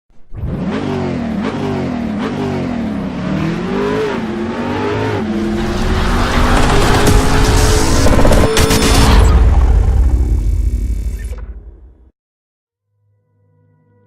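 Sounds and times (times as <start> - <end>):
engine revving: 0.2 - 11.3.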